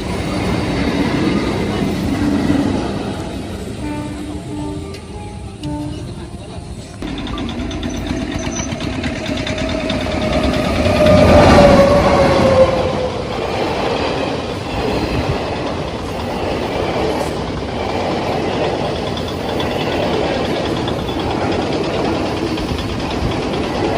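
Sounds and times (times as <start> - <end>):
train passing rumble: 0.0 - 23.9.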